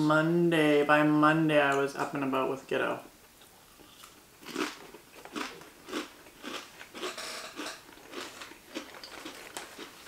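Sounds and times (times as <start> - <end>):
people chewing: 3.4 - 10.0.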